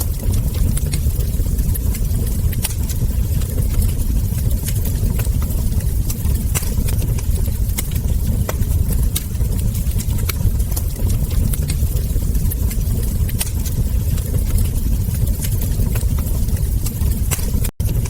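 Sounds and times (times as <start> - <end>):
burning logs popping and snapping: 0.0 - 18.0
low rumble: 0.0 - 18.0
wood fire crackling: 0.0 - 18.0.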